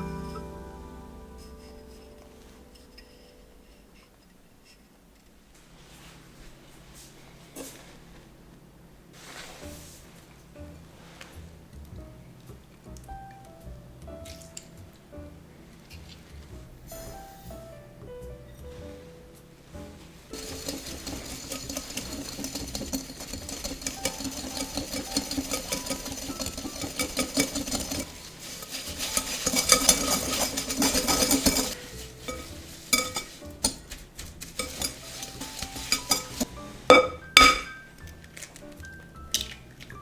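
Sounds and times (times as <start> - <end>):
utensil scraping a mixing bowl: 19.9 - 37.8.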